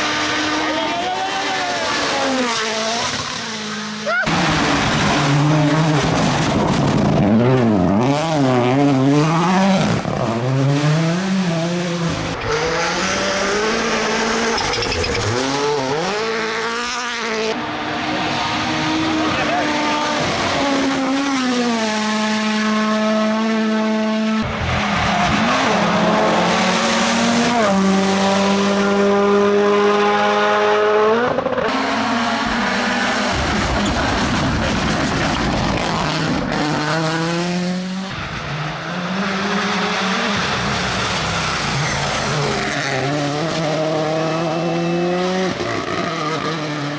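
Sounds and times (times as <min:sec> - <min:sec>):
rally car engine revving: 0:00.0 - 0:46.9
tyres skidding on road: 0:31.7 - 0:44.4.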